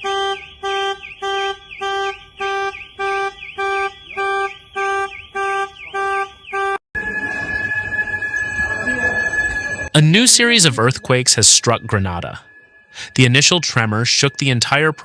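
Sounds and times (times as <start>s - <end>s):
car alarm pulsing: 0.0s - 15.0s
steady high tone: 7.0s - 15.0s.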